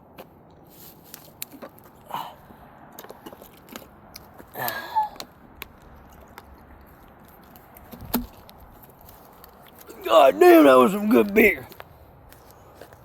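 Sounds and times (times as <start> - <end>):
person gulping and breathing: 4.5 - 5.3.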